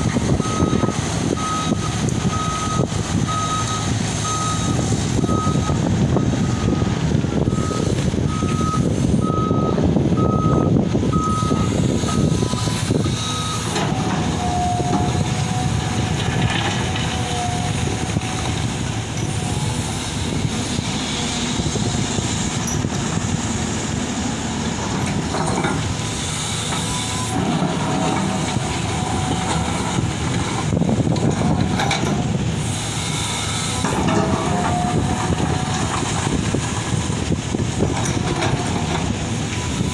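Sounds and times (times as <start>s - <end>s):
diesel excavators running: 0.0s - 39.9s
hydraulic noise: 0.0s - 39.9s
reversing alarm beeping: 0.3s - 18.6s, 25.1s - 36.4s.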